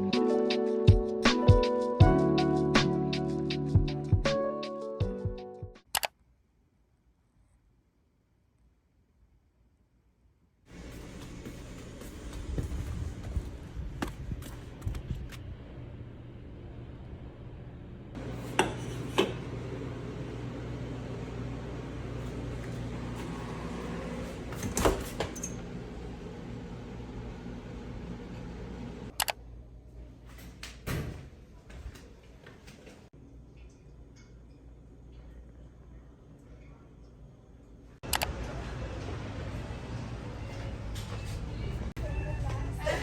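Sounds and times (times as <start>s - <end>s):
steady appliance hum: 10.7s - 43.0s.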